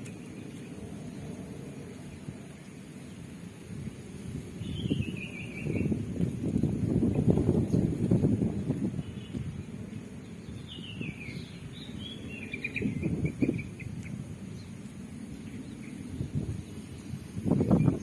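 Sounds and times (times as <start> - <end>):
low outdoor noise: 0.0 - 18.0
bird twittering: 4.6 - 6.0, 10.2 - 14.7.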